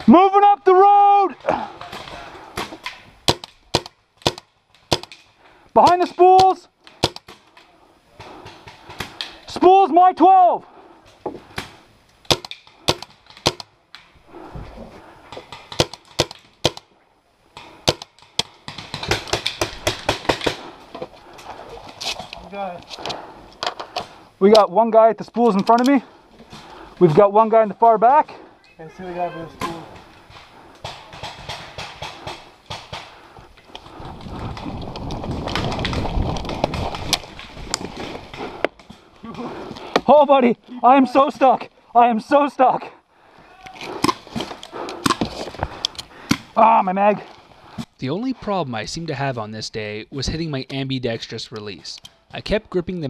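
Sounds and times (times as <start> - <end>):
paintball markers firing: 1.8 - 5.3, 6.0 - 7.5, 12.3 - 13.7, 15.3 - 16.9, 17.6 - 20.7
footsteps and jostling gear: 17.6 - 24.2, 29.8 - 40.7, 43.4 - 48.0.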